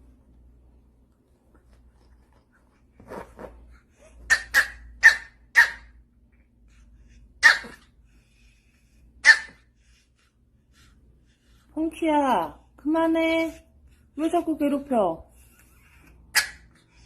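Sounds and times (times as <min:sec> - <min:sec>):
small dog yapping: 0:04.0 - 0:05.9, 0:07.4 - 0:07.9, 0:09.2 - 0:09.6, 0:16.3 - 0:16.8.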